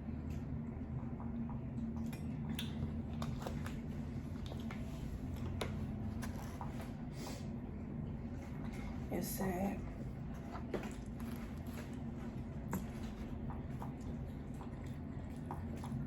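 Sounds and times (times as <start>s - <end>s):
low room hum: 0.0s - 16.0s
close-miked chewing noodles: 0.2s - 7.0s, 9.9s - 16.0s
wet mouth clicks and squishes: 2.0s - 3.8s.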